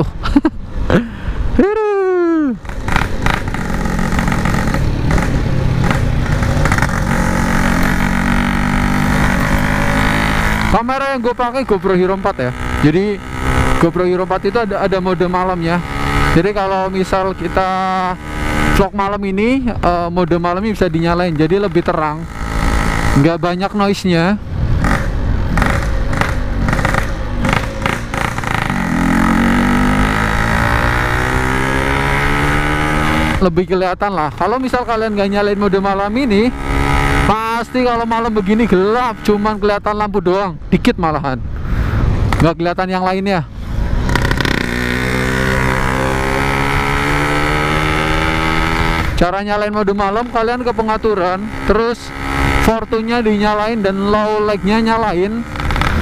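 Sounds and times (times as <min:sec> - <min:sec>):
two-stroke motorcycle engine running: 0:02.6 - 0:11.0, 0:24.8 - 0:33.4, 0:44.1 - 0:56.0.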